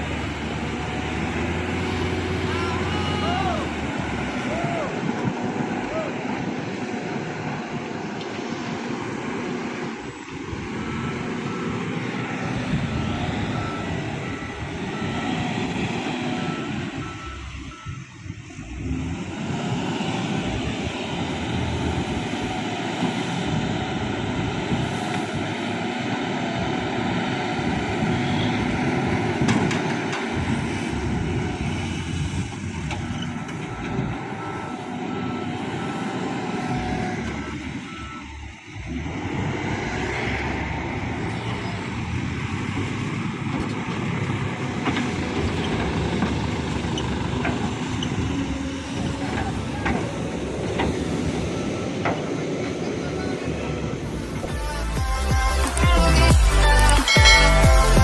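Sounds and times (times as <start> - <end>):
reversing beeper: 0.0 - 7.1, 10.0 - 19.0, 32.8 - 40.4, 45.5 - 58.0
diesel truck engine running: 0.0 - 58.0.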